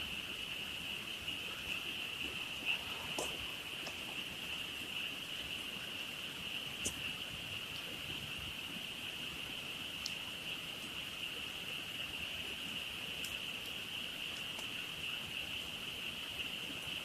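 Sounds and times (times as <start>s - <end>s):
chorus of frogs trilling: 0.0s - 17.0s
campfire crackling and popping: 1.2s - 5.8s, 6.5s - 8.2s.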